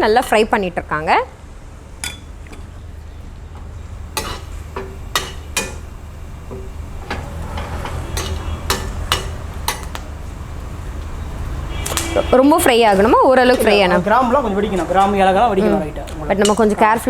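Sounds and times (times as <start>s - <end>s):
spices sizzling in hot oil: 1.9s - 12.0s
spoon scraping a pan: 3.6s - 10.0s.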